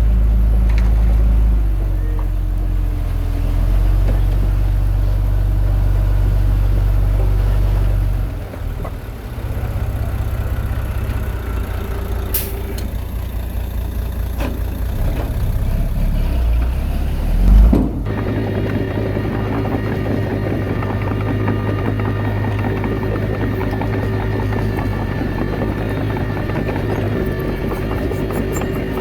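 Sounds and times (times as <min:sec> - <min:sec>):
heavy diesel engine rumbling: 0:00.0 - 0:29.0
heavy low thump: 0:17.5 - 0:18.2.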